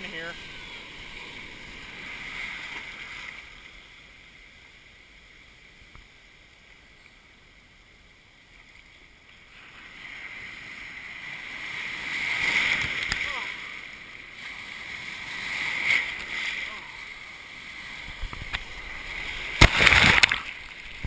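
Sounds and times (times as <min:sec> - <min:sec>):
ocean surf washing: 0:00.0 - 0:05.2, 0:09.4 - 0:21.0.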